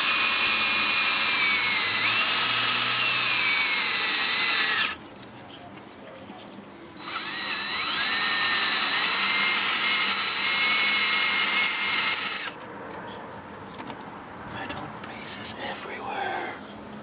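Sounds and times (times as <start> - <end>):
power tool motor whining: 0.0 - 5.0, 7.0 - 12.6.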